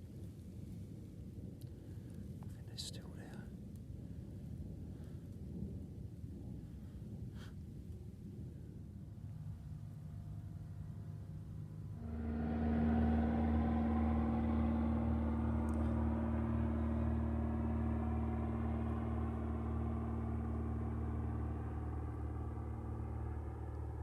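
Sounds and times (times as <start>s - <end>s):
airplane flying over: 8.7s - 24.0s.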